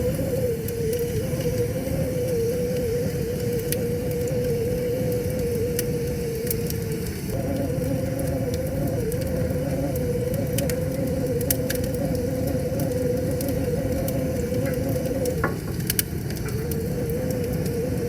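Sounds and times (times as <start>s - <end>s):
low rush: 0.0s - 18.0s
wavering hum: 0.0s - 18.0s
wood fire crackling and popping: 0.0s - 18.0s.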